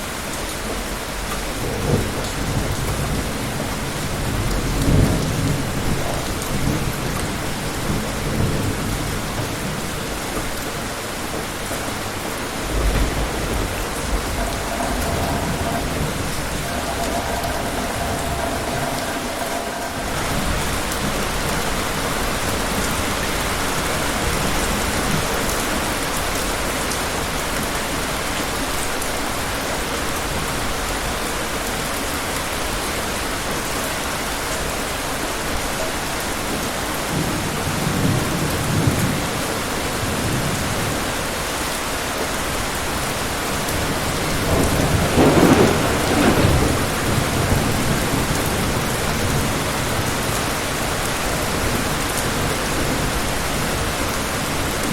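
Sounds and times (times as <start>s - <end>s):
heavy rain: 0.0s - 54.9s
distant thunder rumbling: 1.2s - 25.6s, 43.8s - 54.9s.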